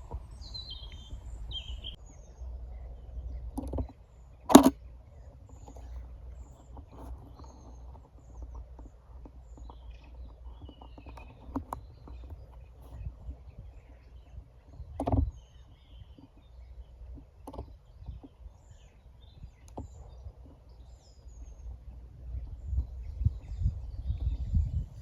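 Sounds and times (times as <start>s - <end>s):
small birds chirping: 0.0s - 25.0s
faint crackles and clicks: 3.5s - 22.0s.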